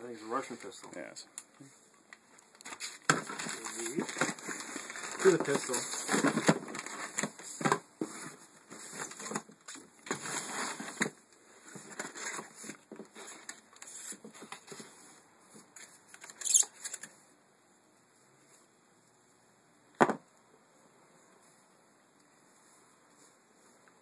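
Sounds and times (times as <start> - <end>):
packaging rustling and scraping: 2.5 - 17.1.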